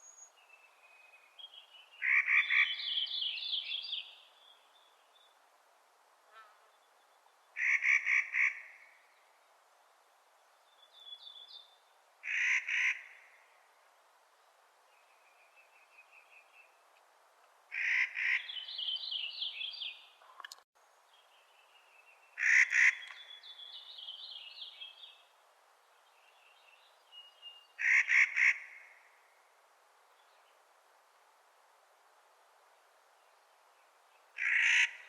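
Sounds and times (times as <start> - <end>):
bird harsh grating calls: 12.2 - 13.1, 22.4 - 23.2, 27.8 - 28.7, 34.4 - 35.0.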